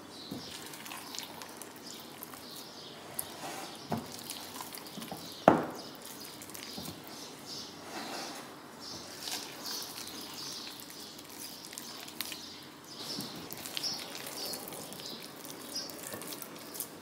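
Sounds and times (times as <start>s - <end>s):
bread dough squelching: 0.4s - 7.2s, 9.0s - 17.0s.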